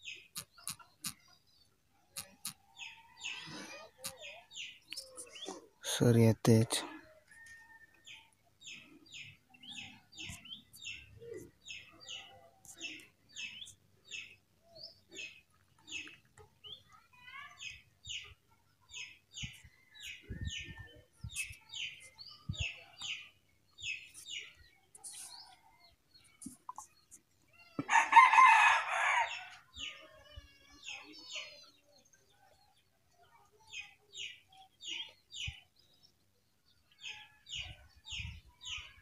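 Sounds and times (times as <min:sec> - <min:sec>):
small bird chirping: 0:00.0 - 0:05.7, 0:08.1 - 0:27.8.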